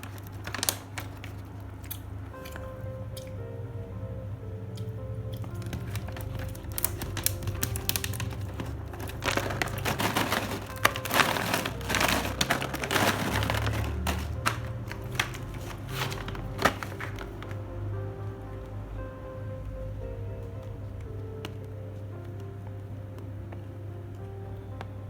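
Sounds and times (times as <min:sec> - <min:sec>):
plastic packaging crinkling: 0:00.0 - 0:03.3, 0:05.3 - 0:18.1
background music: 0:00.1 - 0:25.0.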